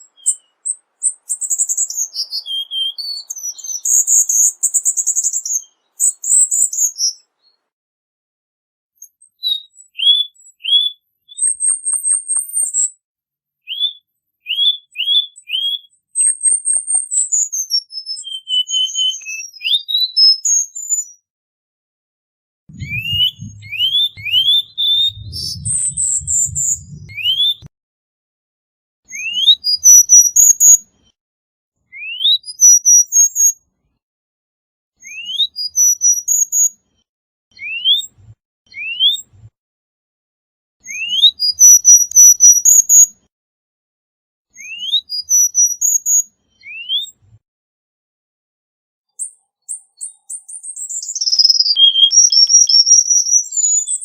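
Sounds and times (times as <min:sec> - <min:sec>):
bird singing whistles: 0:00.0 - 0:07.6, 0:09.0 - 0:12.9, 0:13.6 - 0:21.2, 0:22.7 - 0:27.7, 0:29.1 - 0:30.8, 0:31.9 - 0:33.6, 0:35.0 - 0:36.8, 0:37.5 - 0:39.3, 0:40.8 - 0:43.1, 0:44.6 - 0:47.2, 0:49.2 - 0:54.0
low rumble: 0:22.7 - 0:27.6.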